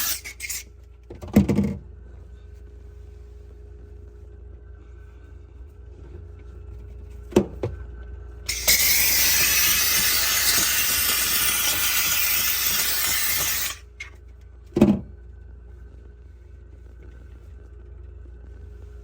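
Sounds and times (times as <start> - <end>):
steam cleaner hissing: 8.5 - 13.8.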